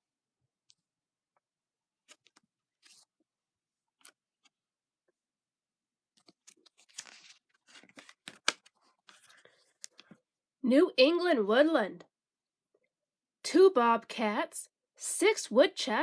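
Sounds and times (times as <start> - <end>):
book pages rustling: 2.0 - 4.6, 6.1 - 10.3.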